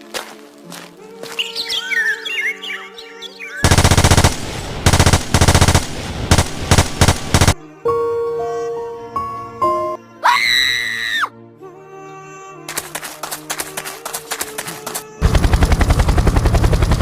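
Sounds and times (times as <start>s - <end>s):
soft background music: 0.0s - 3.7s, 7.6s - 15.2s
birds chirping: 1.2s - 7.6s
automatic gunfire: 3.6s - 7.6s.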